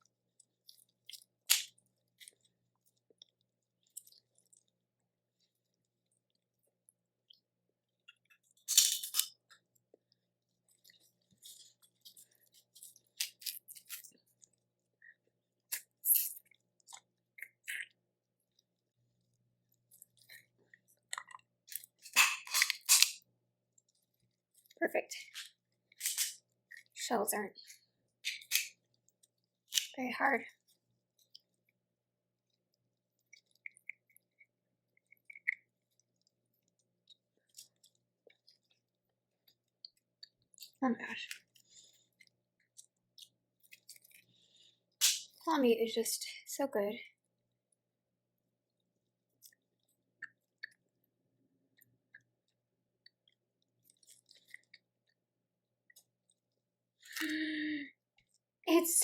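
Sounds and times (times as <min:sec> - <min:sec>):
wet eating clicks and smacks: 0:00.3 - 0:04.8, 0:05.4 - 0:27.0, 0:27.6 - 0:30.0, 0:32.4 - 0:45.4, 0:48.7 - 0:55.2, 0:55.8 - 0:57.4
seafood shells cracking: 0:01.1 - 0:02.5, 0:08.1 - 0:09.8, 0:11.6 - 0:14.6, 0:19.7 - 0:23.4, 0:25.4 - 0:26.8, 0:28.2 - 0:29.0, 0:40.2 - 0:45.4.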